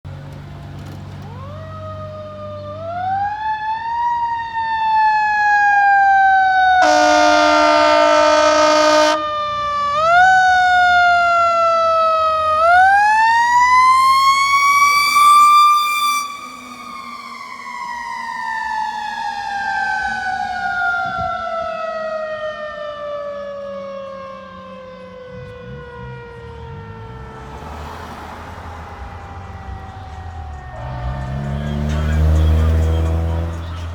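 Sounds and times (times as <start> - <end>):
horn blast: 6.8 - 9.2, 27.0 - 33.9.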